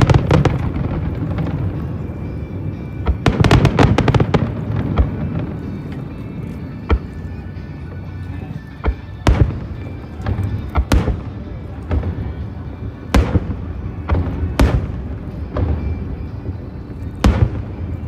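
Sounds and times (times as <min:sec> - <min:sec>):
fireworks bursting with sharp bangs: 0:00.0 - 0:18.0
music: 0:00.0 - 0:18.0.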